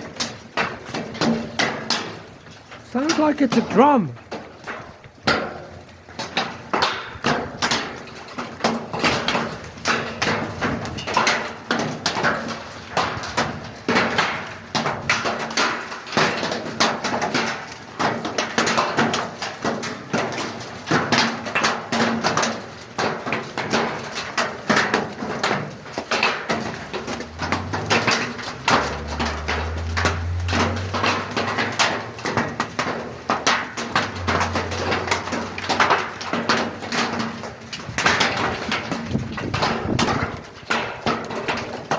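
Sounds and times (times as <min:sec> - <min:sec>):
hailstones drumming on a roof: 0:00.0 - 0:41.9.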